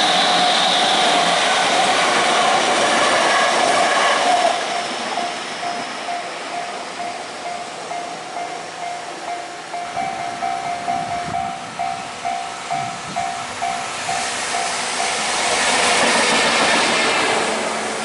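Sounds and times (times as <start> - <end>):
trains rolling past: 0.0 - 18.0
level crossing warning bell: 1.0 - 2.0, 4.6 - 15.4.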